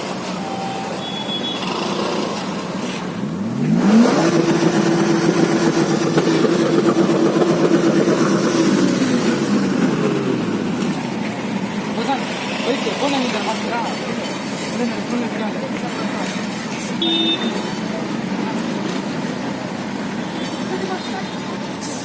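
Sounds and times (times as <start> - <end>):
street traffic: 0.0 - 22.0
vehicle engine revving: 1.5 - 13.7.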